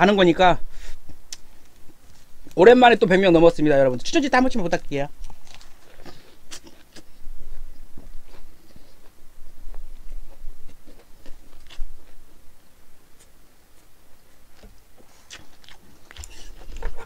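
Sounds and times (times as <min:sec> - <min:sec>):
food being chewed: 0:05.2 - 0:17.0.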